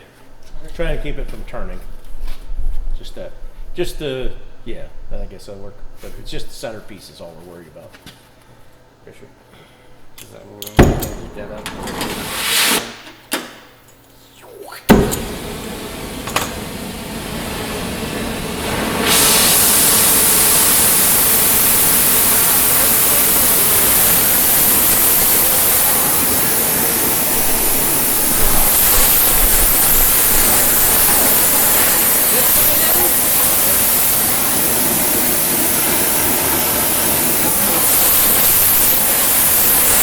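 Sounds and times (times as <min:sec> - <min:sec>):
gas torch lighting pop: 0:10.7 - 0:13.2, 0:14.9 - 0:40.0
torch flame hissing: 0:10.8 - 0:13.1, 0:14.3 - 0:40.0.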